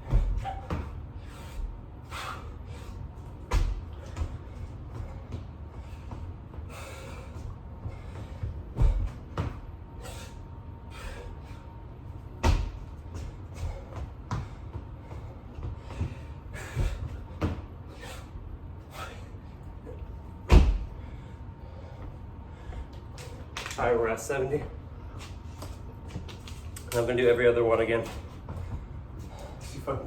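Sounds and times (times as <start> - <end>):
body thumping on floor: 8.8 - 9.6, 12.4 - 12.9, 20.5 - 20.9.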